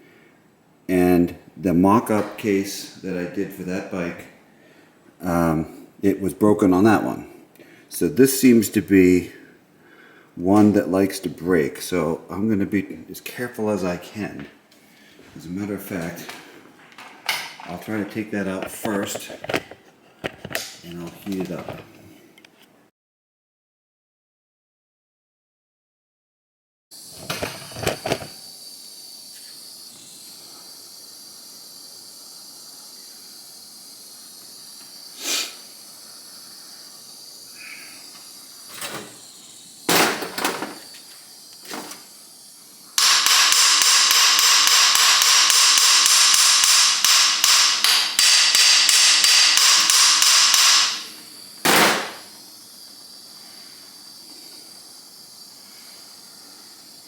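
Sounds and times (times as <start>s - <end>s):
loud fluttering hiss: 27.0s - 57.0s.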